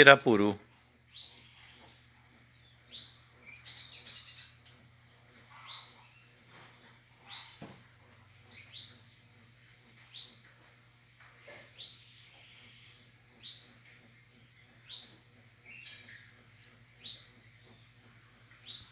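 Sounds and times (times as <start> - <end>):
bird calling: 5.3 - 6.6, 11.2 - 18.9.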